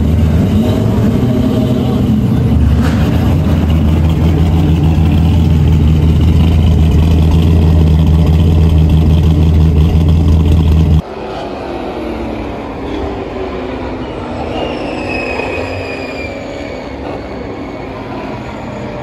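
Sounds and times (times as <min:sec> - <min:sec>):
distant engine: 0:00.0 - 0:19.0
engine idling: 0:02.1 - 0:11.0.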